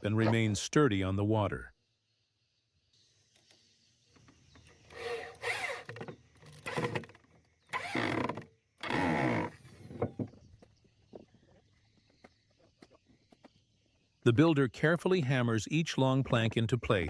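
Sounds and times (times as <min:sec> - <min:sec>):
power drill drilling into wood: 0:04.9 - 0:05.9, 0:07.7 - 0:09.6.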